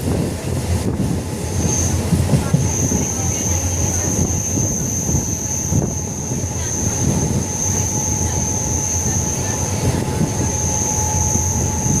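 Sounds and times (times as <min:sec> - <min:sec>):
high-pitched train whine: 0:00.0 - 0:12.0
train wheels rumbling on rail: 0:00.0 - 0:12.0.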